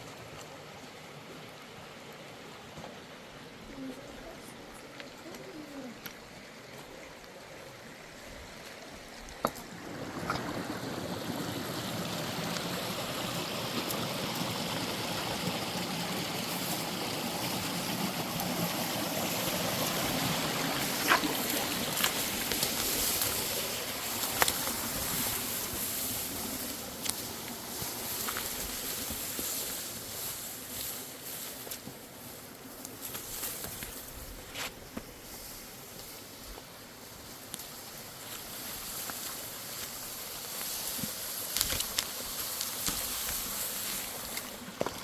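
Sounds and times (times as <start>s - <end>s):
mountain stream rushing: 0.0s - 45.0s.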